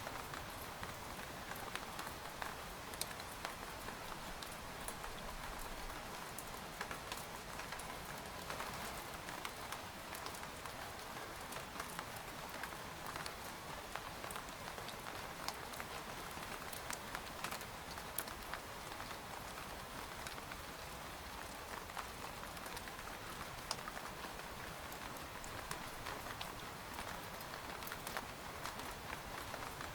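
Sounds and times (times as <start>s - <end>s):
rain pattering on tent fabric: 0.0s - 29.9s.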